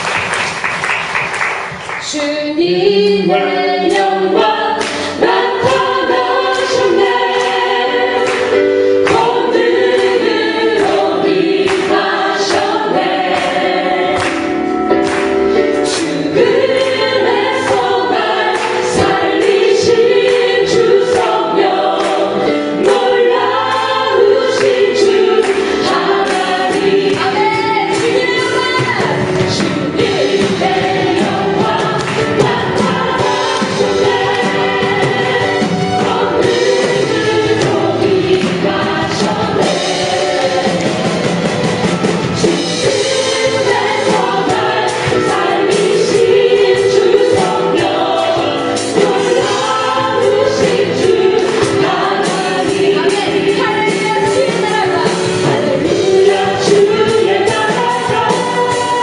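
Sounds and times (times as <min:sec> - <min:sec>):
band playing worship music: 0:00.0 - 0:59.0
many voices singing: 0:00.0 - 0:59.0.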